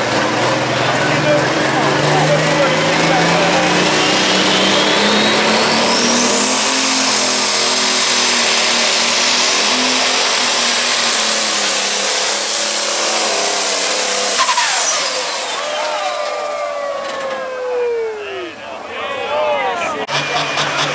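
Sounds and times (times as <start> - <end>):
diesel tractor engine at full throttle: 0.0 - 19.1, 19.8 - 20.9
high turbo whistle: 2.4 - 18.6.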